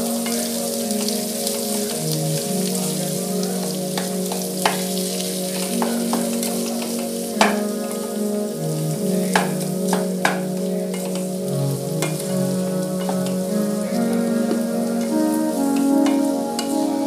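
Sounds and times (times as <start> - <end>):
low tone shifting pitch: 0.0 - 17.0.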